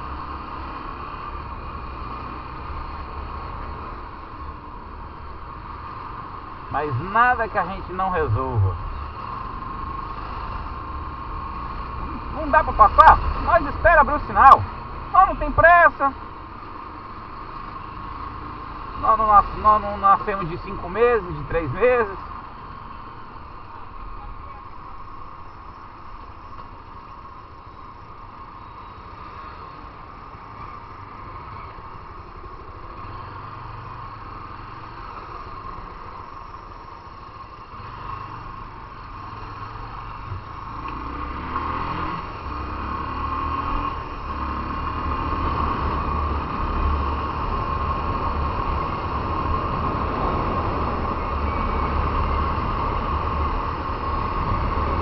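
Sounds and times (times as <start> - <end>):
motorcycle engine accelerating: 6.0 - 15.6.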